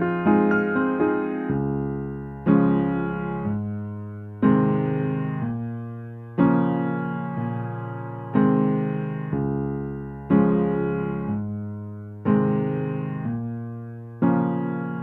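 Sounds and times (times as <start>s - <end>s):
soft electric piano chords: 0.0s - 15.0s.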